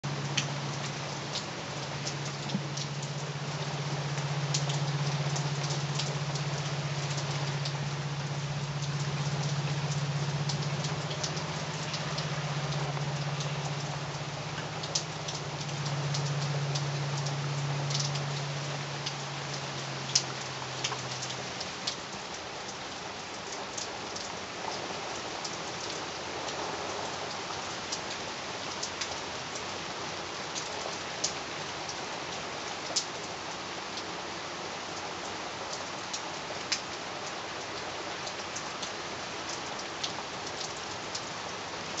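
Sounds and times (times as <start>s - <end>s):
low steady hum: 0.0s - 21.7s
raindrops ticking: 0.0s - 29.9s, 30.5s - 34.1s, 34.9s - 42.0s
steady rain patter: 0.0s - 42.0s.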